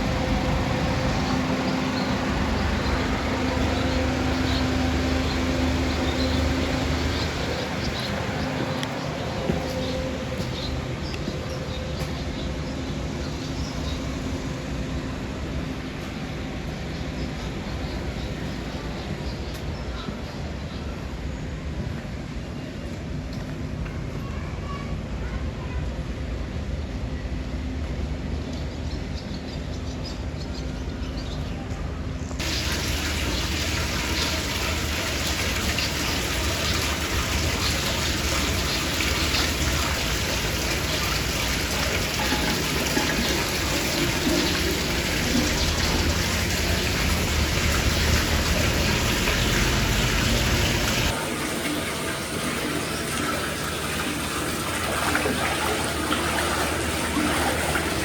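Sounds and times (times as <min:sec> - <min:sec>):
water pouring and trickling: 0:00.0 - 0:12.3, 0:32.4 - 0:58.0.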